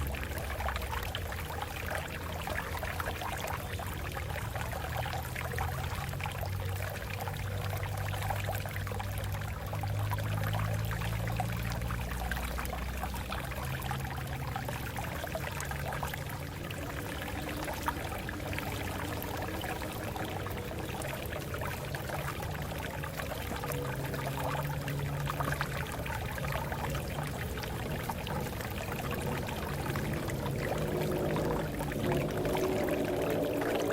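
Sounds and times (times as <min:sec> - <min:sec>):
water splashing over rocks: 0:00.0 - 0:33.9
deep rumbling: 0:25.9 - 0:33.9.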